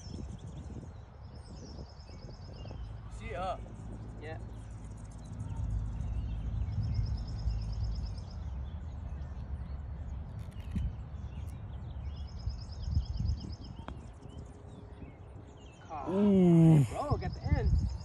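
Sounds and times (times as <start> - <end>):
small bird chirps: 0.0 - 16.3.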